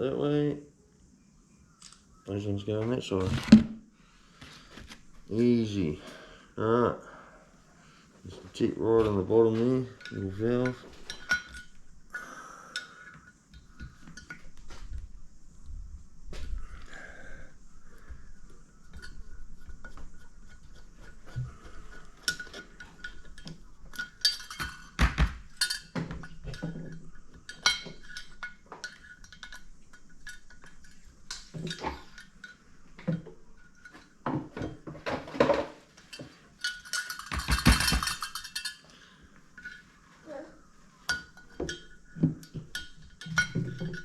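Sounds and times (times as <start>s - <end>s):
metal parts and tools clinking: 8.3s - 12.1s, 12.8s - 15.0s, 16.5s - 39.9s, 41.0s - 44.0s
metal clatter: 18.7s - 32.6s, 33.4s - 38.9s.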